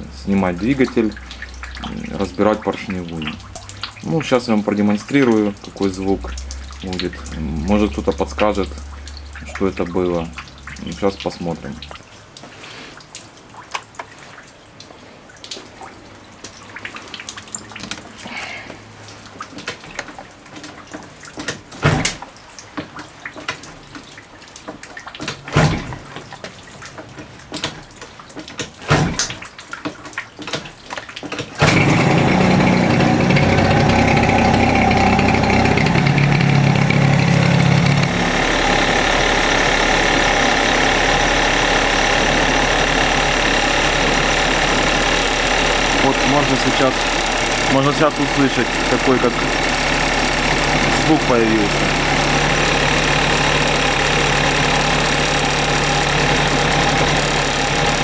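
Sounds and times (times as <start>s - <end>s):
scooter engine idling: 31.7s - 58.0s.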